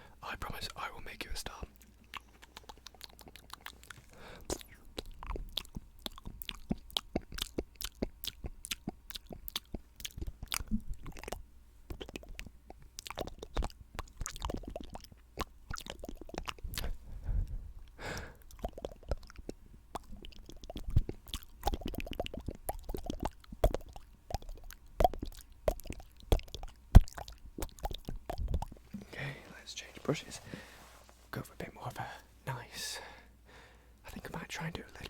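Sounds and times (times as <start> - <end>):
wet mouth clicks and smacks: 1.7 - 17.0, 17.8 - 29.0
soft brush rustle: 28.8 - 32.5.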